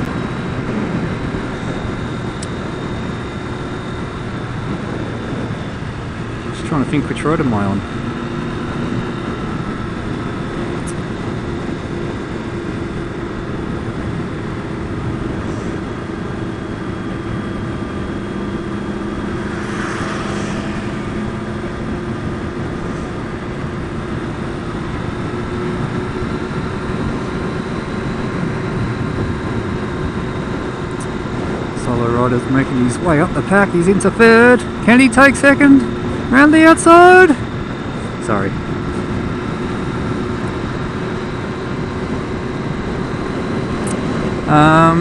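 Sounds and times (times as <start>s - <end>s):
motorcycle engine cruising: 0.0s - 45.0s
road noise: 0.0s - 45.0s
wind: 0.0s - 45.0s.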